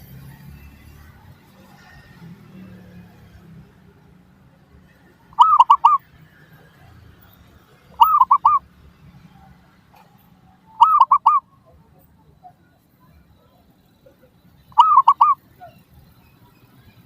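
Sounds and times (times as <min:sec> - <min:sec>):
dove cooing: 0:05.4 - 0:06.0, 0:08.0 - 0:08.6, 0:10.8 - 0:11.4, 0:14.7 - 0:15.4.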